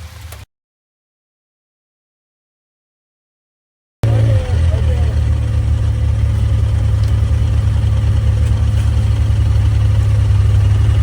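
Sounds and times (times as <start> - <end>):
utility vehicle engine idling: 4.0 - 11.0.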